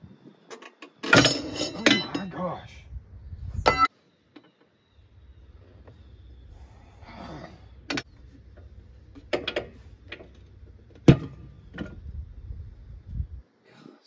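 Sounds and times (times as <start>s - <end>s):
low rumble: 2.7s - 3.8s, 5.0s - 13.4s.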